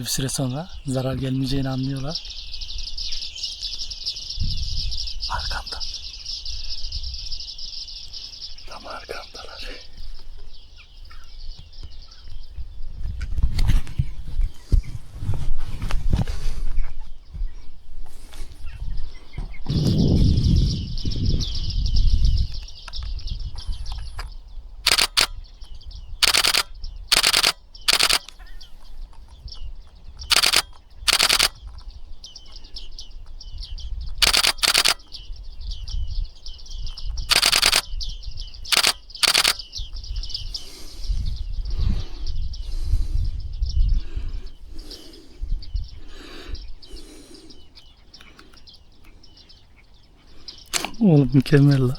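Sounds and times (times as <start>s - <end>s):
birds chattering with pinging calls: 0.0s - 13.1s, 16.7s - 51.9s
camera shutter burst clicking: 24.8s - 25.4s, 26.2s - 28.4s, 30.3s - 31.6s, 34.2s - 35.1s, 37.3s - 37.9s, 38.7s - 39.6s.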